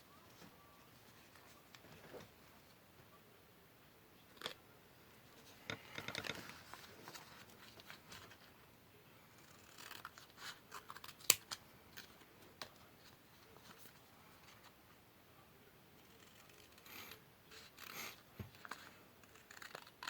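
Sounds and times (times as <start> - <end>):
scissors cutting paper: 9.4 - 11.6, 16.0 - 20.0.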